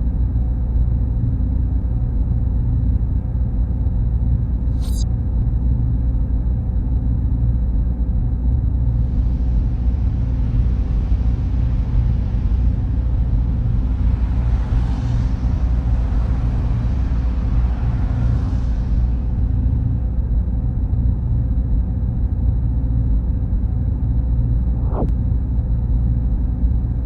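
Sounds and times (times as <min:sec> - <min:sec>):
server fans rumbling: 0:07.0 - 0:27.0.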